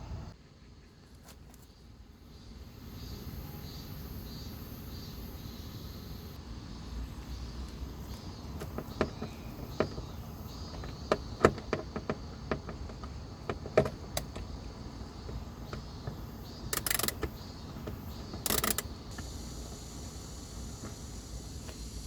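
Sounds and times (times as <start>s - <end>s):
rapid clicking: 15.2s - 21.1s.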